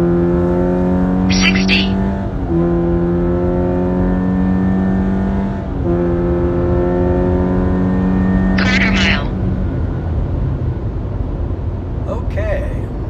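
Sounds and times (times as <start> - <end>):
car engine accelerating hard: 2.0 - 8.6.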